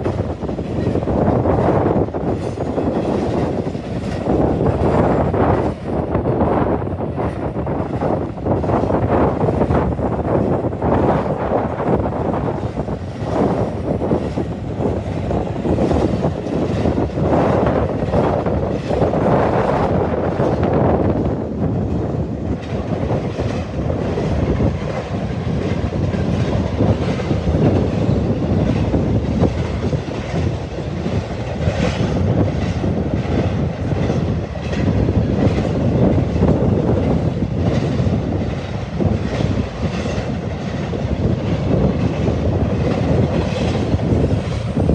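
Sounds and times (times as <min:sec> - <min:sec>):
train wheels clattering on rails: 0:00.0 - 0:44.9.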